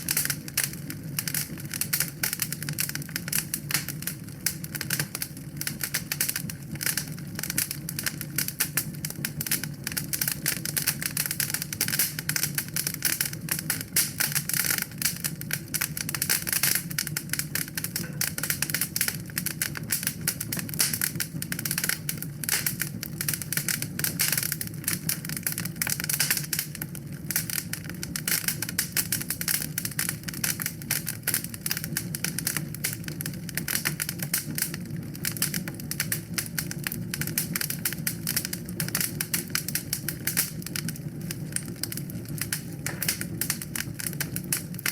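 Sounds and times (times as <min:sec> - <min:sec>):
low rumble of flame: 0:00.0 - 0:44.9
wood fire crackling and popping: 0:00.0 - 0:44.9.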